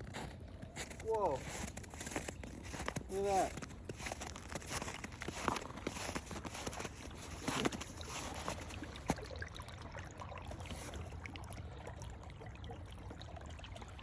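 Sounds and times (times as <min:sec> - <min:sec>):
footsteps crunching in snow: 0:00.0 - 0:08.8
water trickling under ice: 0:00.0 - 0:14.0.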